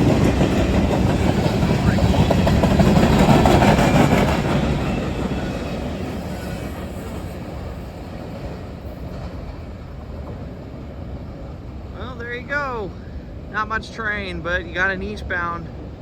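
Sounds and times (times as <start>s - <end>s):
train wheels clicking on rails: 0.0s - 12.5s
freight train rumble: 0.0s - 16.0s.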